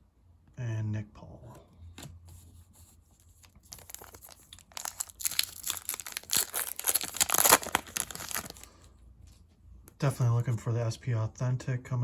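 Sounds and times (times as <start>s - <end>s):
foil wrapper crinkling and tearing: 3.4s - 8.9s.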